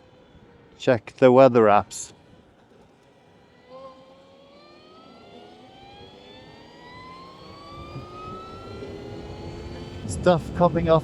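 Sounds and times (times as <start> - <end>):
electric motorcycle motor whine: 0.0 - 11.0
wind and road noise: 4.6 - 11.0.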